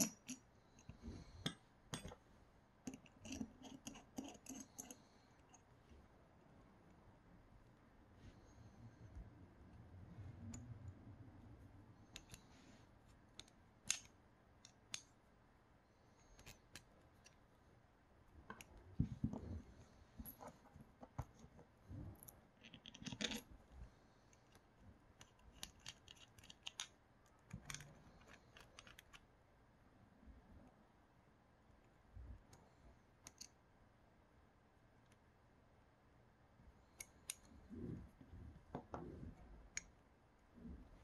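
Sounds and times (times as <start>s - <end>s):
small parts clicking and tapping: 0.0s - 2.2s, 2.8s - 5.7s, 12.0s - 15.2s, 16.3s - 17.5s, 18.3s - 19.5s, 20.2s - 23.5s, 24.3s - 29.3s, 31.8s - 33.6s, 36.8s - 37.8s.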